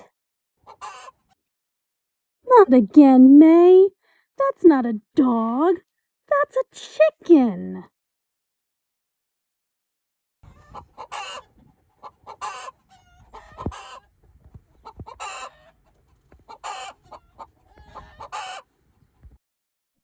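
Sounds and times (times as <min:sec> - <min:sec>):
chicken clucking: 0:00.6 - 0:01.4, 0:10.4 - 0:19.3
chicken squawking: 0:00.6 - 0:01.4, 0:10.4 - 0:14.1, 0:14.7 - 0:19.1.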